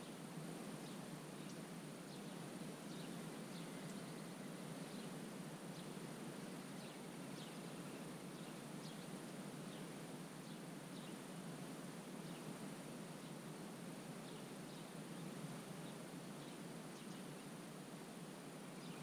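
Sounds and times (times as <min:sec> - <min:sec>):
soft steady hiss: 0:00.0 - 0:19.0
small birds chirping: 0:15.8 - 0:17.6.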